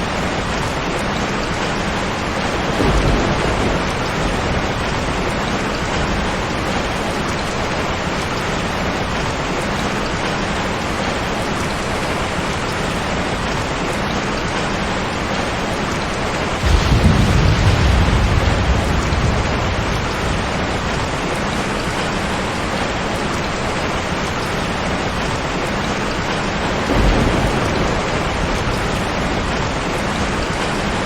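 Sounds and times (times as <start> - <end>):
heavy rain hiss: 0.0 - 31.0
thunder rumbling: 2.3 - 8.2, 15.7 - 25.6, 26.2 - 31.0.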